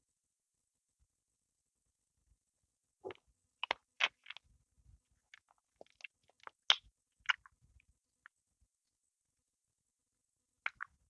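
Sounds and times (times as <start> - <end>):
chewing crusty bread: 3.1 - 4.4, 5.3 - 7.5.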